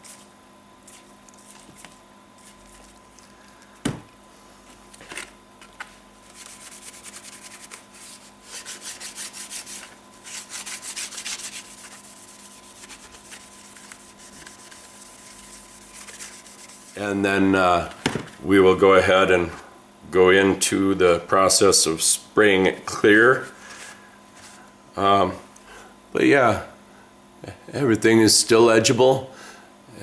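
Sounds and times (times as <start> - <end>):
pad scrubbing plastic: 5.0 - 17.2.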